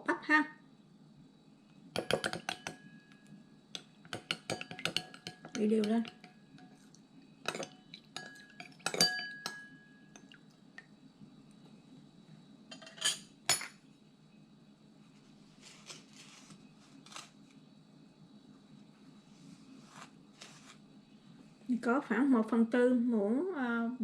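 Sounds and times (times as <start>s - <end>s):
spoon clattering: 2.0s - 3.2s, 3.8s - 6.8s, 7.4s - 10.4s
metal spoon clinking on bowl: 2.0s - 6.8s, 7.4s - 10.4s
spoon scraping bowl: 3.8s - 6.9s, 7.5s - 9.7s.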